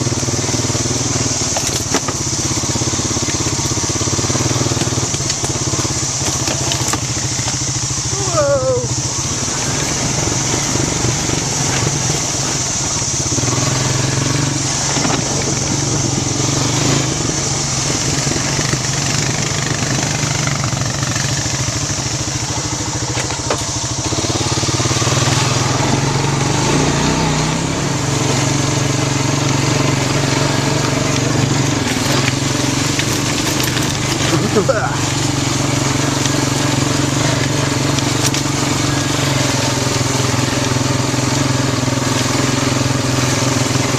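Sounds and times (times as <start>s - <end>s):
quad bike engine running: 0.0s - 43.9s.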